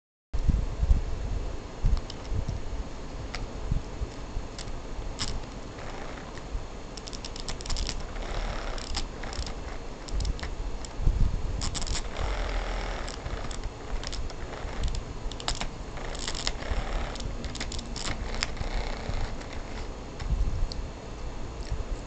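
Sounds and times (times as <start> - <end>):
cat toy clicking and rattling: 4.6 - 6.4, 7.0 - 11.0, 11.6 - 20.3.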